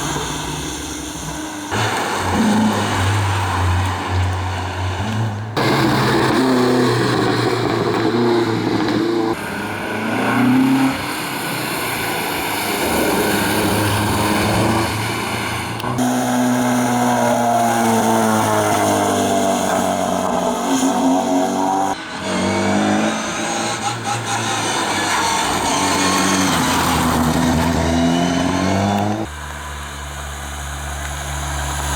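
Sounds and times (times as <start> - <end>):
rally car engines revving: 0.0 - 31.9.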